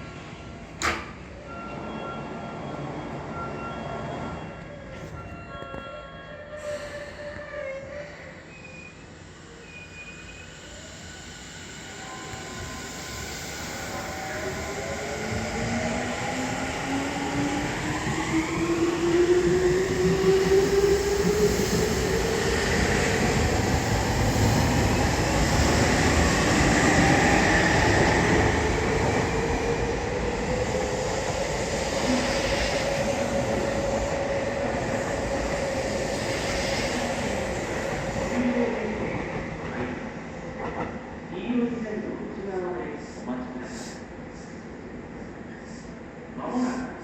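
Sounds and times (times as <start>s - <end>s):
train traction motor whine: 8.6s - 16.9s
train wheels on rail: 9.3s - 41.2s.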